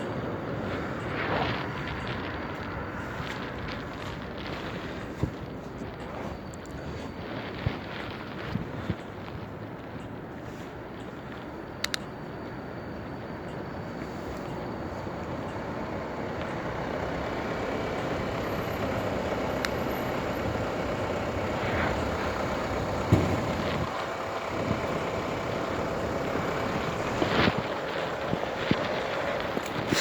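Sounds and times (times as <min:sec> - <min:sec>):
bicycle road noise: 0:00.0 - 0:30.0
sharp clicks: 0:11.0 - 0:12.6.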